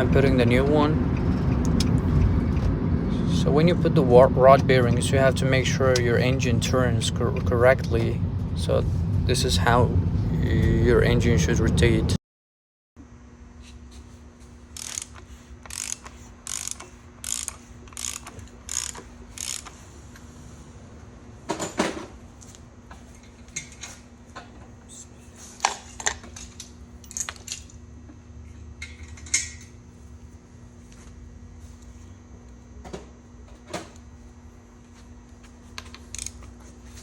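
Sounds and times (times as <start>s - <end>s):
ratchet wrench clicking: 14.7s - 19.8s, 35.8s - 36.5s.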